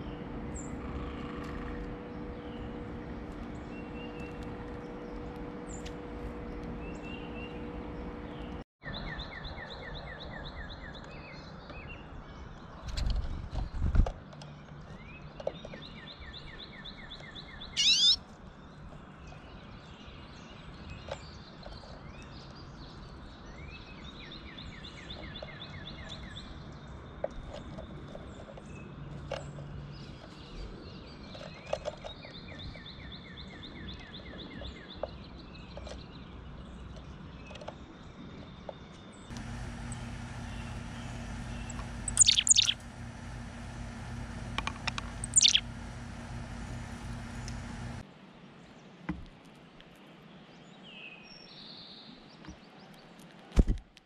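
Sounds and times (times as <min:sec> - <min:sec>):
songbirds trilling: 0:00.0 - 0:48.0
sharp rising bird note: 0:17.8 - 0:18.2, 0:41.6 - 0:42.8.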